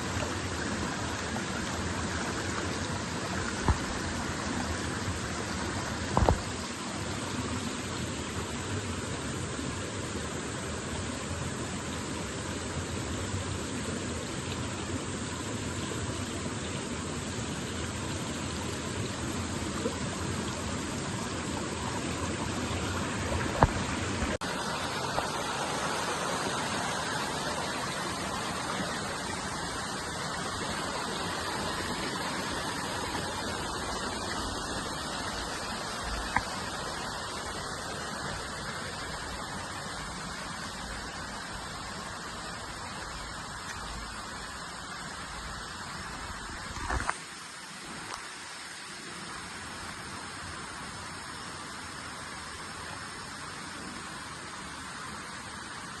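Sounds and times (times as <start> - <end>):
water rushing: 0.0 - 56.0.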